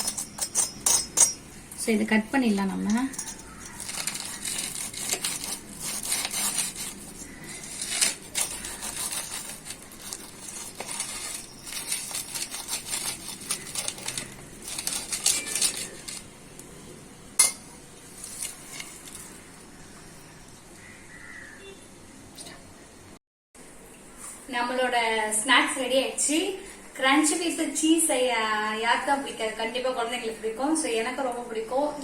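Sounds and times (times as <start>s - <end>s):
knife clinking on plate: 0.0s - 1.4s, 2.9s - 4.0s
knife crunching fried bread: 3.3s - 16.3s.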